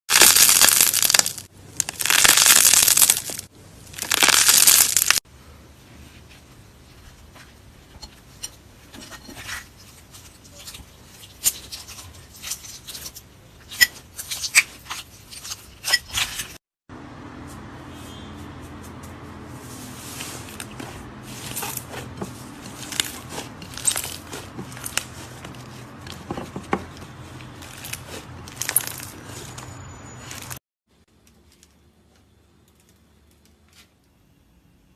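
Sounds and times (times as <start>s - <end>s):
slime squishing: 20.2s - 26.0s.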